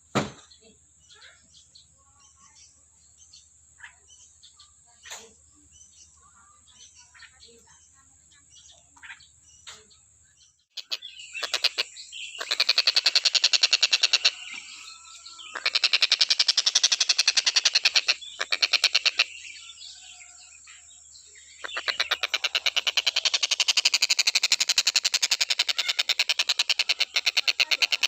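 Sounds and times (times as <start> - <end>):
kingfisher rattling trills: 10.8 - 20.9, 21.6 - 28.0.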